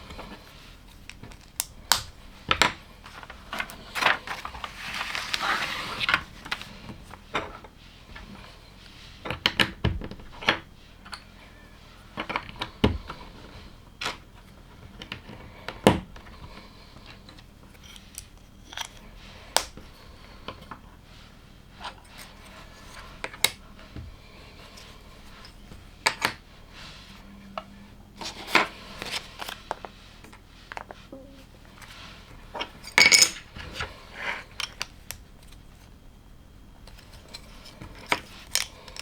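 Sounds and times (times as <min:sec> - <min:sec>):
plastic bricks clicking: 0:38.0 - 0:39.0.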